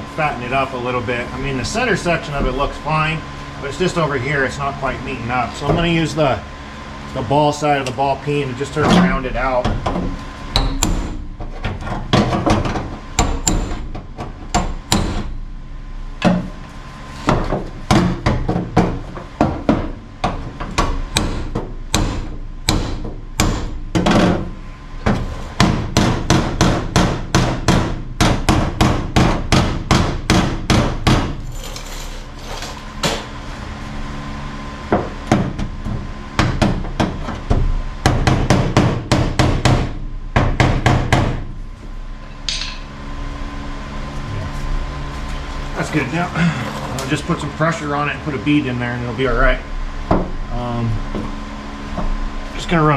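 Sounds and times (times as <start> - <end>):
hammer striking metal: 10.6 - 11.2, 14.6 - 15.3, 21.1 - 24.1, 42.5 - 42.9.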